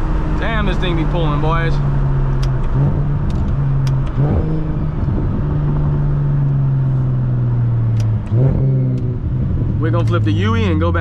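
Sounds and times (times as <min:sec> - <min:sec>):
car engine running: 0:00.0 - 0:11.0
sharp clicks: 0:02.3 - 0:04.2, 0:07.9 - 0:09.1.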